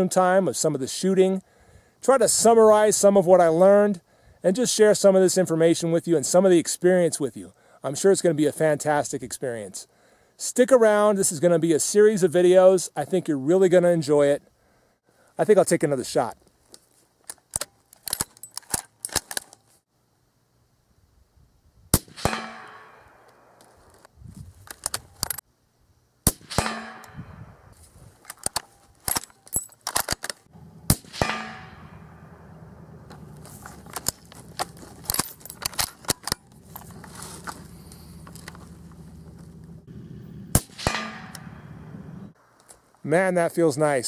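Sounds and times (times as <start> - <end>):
suppressed rifle shots: 21.9 - 23.6, 26.2 - 27.3, 30.8 - 33.4, 40.5 - 41.7
low steady hum: 30.5 - 42.6
metallic clicks and clacks: 33.1 - 37.1.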